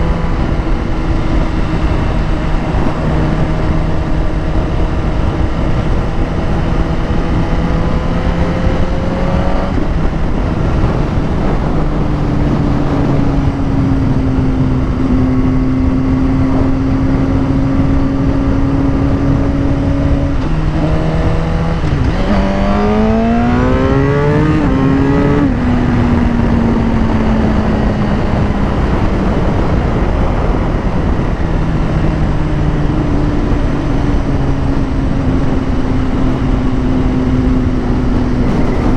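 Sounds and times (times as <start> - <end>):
heavy wind noise: 0.0 - 38.9
motorcycle engine: 0.0 - 38.9.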